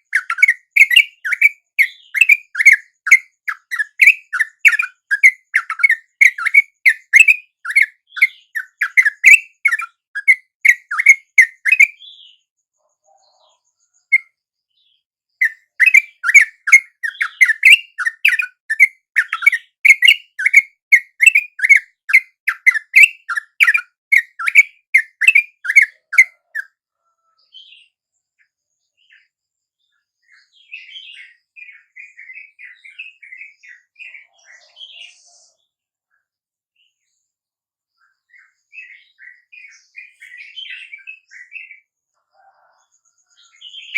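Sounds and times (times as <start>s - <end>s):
soft high bird chattering: 0.0s - 12.0s, 15.4s - 26.8s
bird chirping rapidly: 0.0s - 12.4s, 15.4s - 26.8s, 43.3s - 43.9s.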